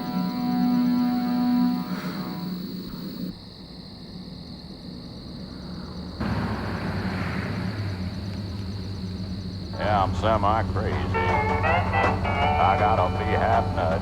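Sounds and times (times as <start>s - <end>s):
vehicle engine droning: 0.0s - 3.3s, 4.7s - 14.0s.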